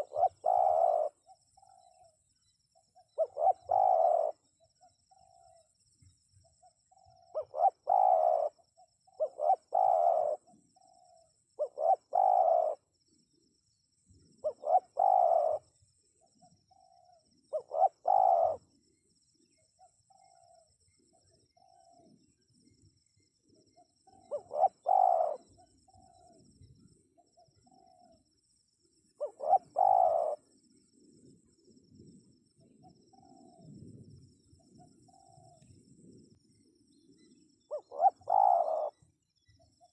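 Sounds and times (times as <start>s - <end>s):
dove cooing: 0.0s - 2.2s, 3.0s - 5.7s, 6.5s - 12.8s, 14.3s - 18.7s, 19.8s - 22.2s, 23.5s - 26.5s, 27.2s - 28.2s, 29.2s - 31.2s, 32.6s - 33.9s, 34.6s - 36.0s, 37.2s - 39.0s.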